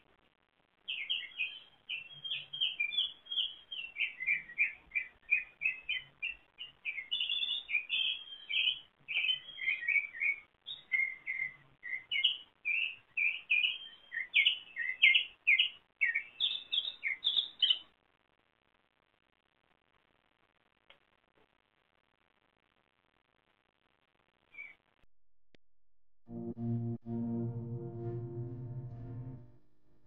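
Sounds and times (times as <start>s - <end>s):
songbird singing: 0.9s - 17.9s, 24.5s - 24.8s.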